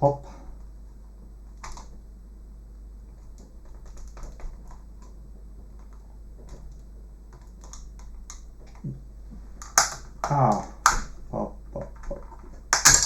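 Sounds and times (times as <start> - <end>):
plastic clip snapping: 9.6 - 11.1
pry tool clicking on plastic: 9.6 - 11.1.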